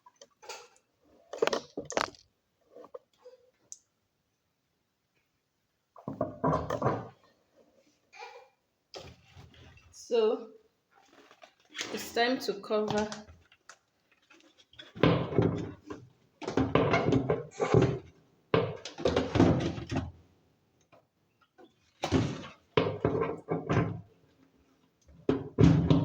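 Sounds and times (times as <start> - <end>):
plastic cover clattering: 1.4 - 2.3, 11.0 - 20.1, 21.8 - 24.0.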